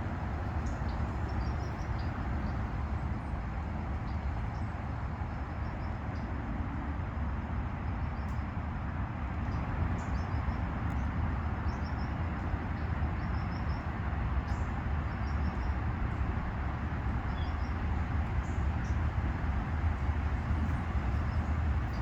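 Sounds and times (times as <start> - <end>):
small birds chirping: 0.0 - 3.0, 9.4 - 22.0.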